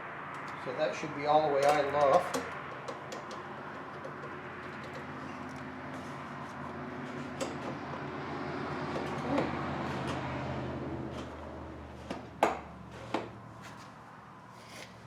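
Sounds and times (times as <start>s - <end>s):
metal clicks and knocks: 1.6s - 5.7s.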